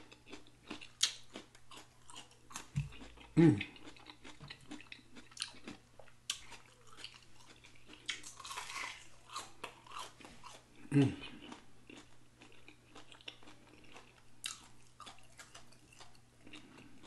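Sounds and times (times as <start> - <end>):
chewing with mouth clicks: 0.0 - 17.0
low mouth sound: 10.8 - 11.3.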